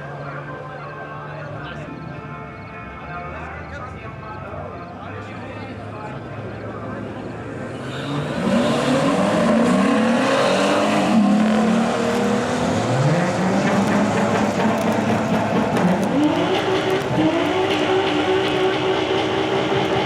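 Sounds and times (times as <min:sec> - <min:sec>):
car engine accelerating: 0:07.8 - 0:20.0.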